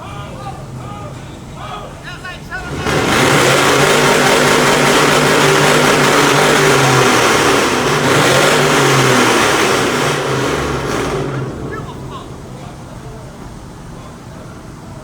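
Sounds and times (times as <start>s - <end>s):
loud engine at high revs: 2.5s - 12.9s.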